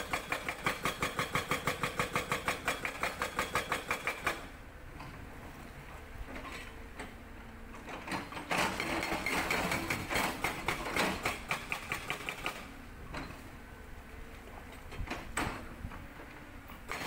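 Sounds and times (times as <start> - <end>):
hydraulic breaker hammering rock: 0.0 - 4.4, 8.1 - 12.7
excavator engine running: 0.0 - 17.0.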